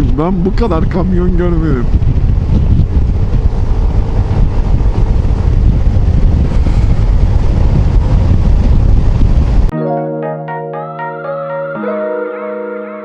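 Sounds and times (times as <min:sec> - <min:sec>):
road noise: 0:00.0 - 0:09.7
wind buffeting microphone: 0:00.0 - 0:09.7
scooter engine: 0:02.4 - 0:09.1.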